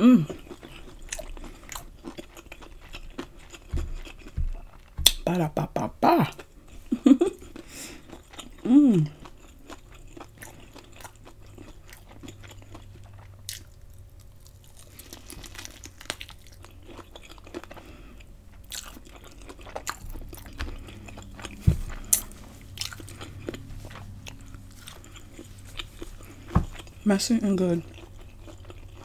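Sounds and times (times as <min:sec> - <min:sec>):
wet chewing mouth sounds: 0:00.2 - 0:05.2, 0:06.3 - 0:27.1, 0:27.8 - 0:29.0
crisp crunches: 0:13.5 - 0:27.0.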